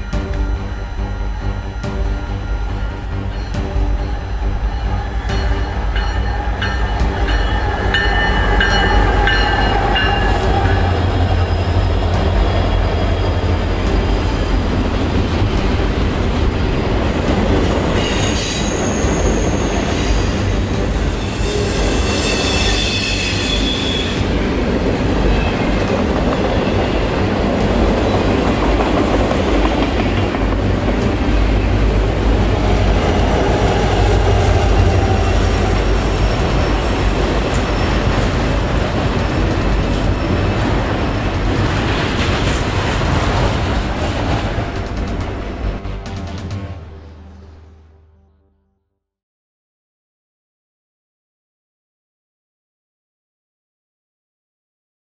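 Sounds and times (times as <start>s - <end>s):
train wheels on rails: 0.0s - 46.7s
diesel locomotives rumbling: 0.0s - 48.4s
high wheel squeal: 17.6s - 27.0s, 32.9s - 40.6s.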